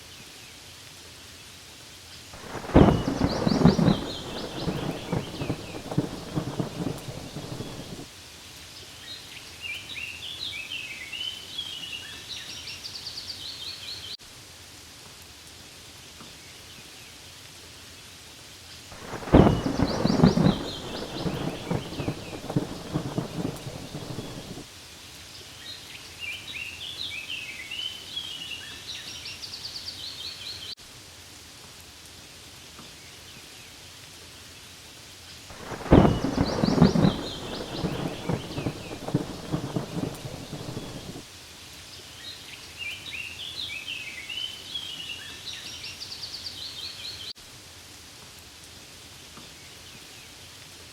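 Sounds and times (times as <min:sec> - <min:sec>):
steady rain: 0:00.0 - 0:50.9
birds chirping: 0:02.4 - 0:08.0, 0:19.0 - 0:24.6, 0:35.6 - 0:41.2
thunder rumbling: 0:02.4 - 0:08.1, 0:19.0 - 0:24.7, 0:35.5 - 0:41.2.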